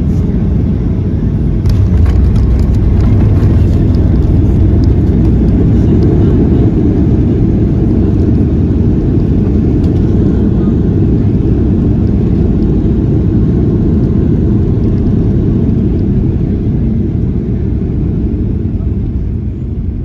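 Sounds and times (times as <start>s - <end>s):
jet engines rumbling in cabin: 0.0s - 20.0s
airflow: 1.4s - 11.7s.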